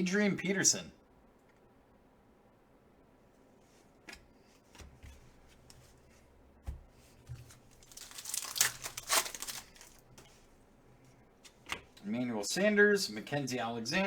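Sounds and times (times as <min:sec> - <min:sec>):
wrapper tearing and crinkling: 0:07.5 - 0:10.0.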